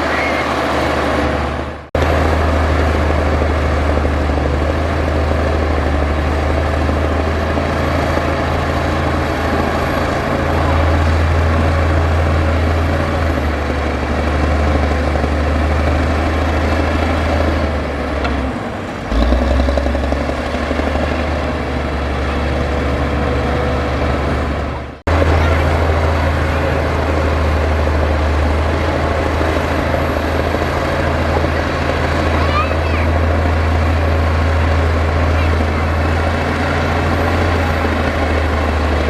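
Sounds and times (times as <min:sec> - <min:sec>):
diesel machinery engine drone: 0:00.0 - 0:39.0.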